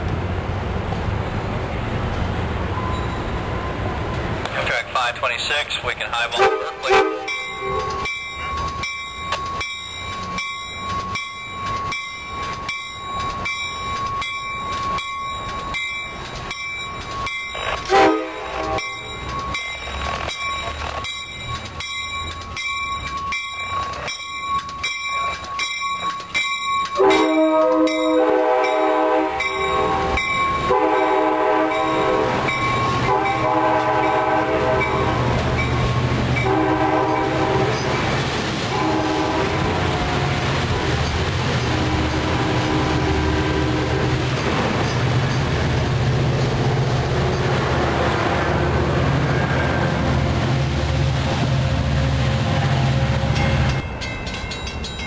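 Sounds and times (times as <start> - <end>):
rumble of train wheels: 0.0 - 55.0
train bell ringing: 2.7 - 4.0, 6.8 - 38.1, 53.2 - 55.0
train horn blasts: 6.3 - 8.0, 17.9 - 19.0, 27.0 - 35.4, 36.4 - 38.1, 38.7 - 40.5, 41.7 - 44.2.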